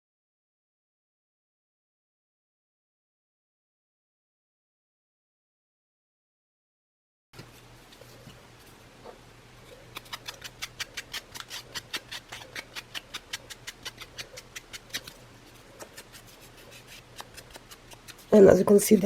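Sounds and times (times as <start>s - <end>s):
faint steady hum: 7.4s - 19.0s
ink pad rubbing on cardboard: 10.8s - 19.0s.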